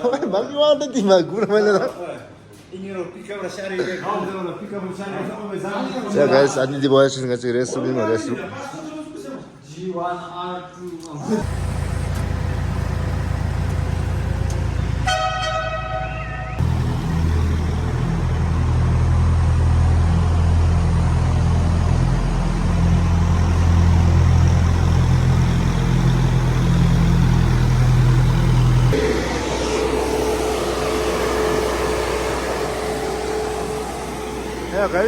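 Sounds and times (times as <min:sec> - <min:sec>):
low engine drone: 0:11.4 - 0:35.0
vehicle horn: 0:15.0 - 0:16.6.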